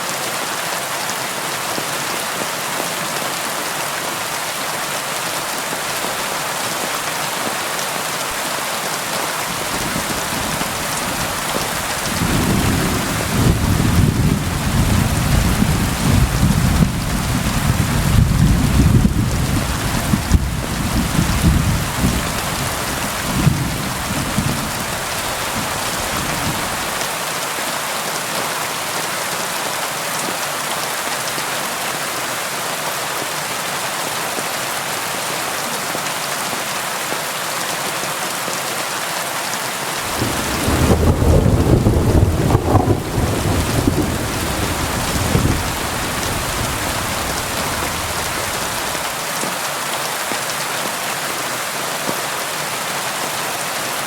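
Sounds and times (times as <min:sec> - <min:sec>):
heavy rainfall: 0:00.0 - 0:54.0
rolling thunder: 0:09.6 - 0:27.0, 0:40.1 - 0:49.0.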